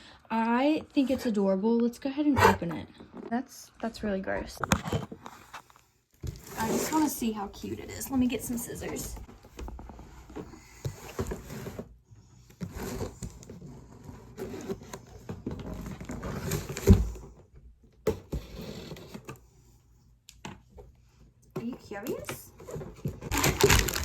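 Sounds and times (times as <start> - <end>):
plastic packaging rustling: 22.7 - 24.0
scissors cutting packaging: 23.2 - 24.0.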